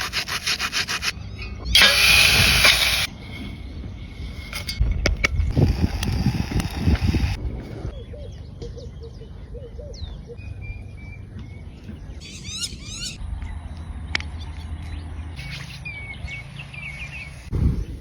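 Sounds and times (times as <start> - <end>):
steady low rumble: 2.9 - 8.5.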